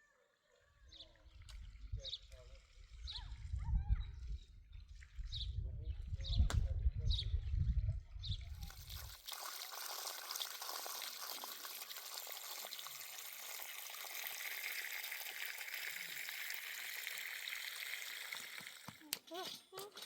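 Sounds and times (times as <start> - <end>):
running water hiss: 8.6 - 19.2.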